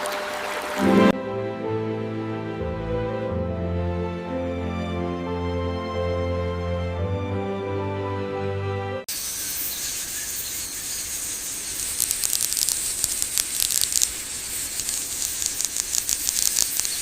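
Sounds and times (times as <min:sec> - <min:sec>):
piano music: 0:00.8 - 0:09.0
steady hiss: 0:09.1 - 0:17.0
crackles and ticks: 0:11.1 - 0:17.0.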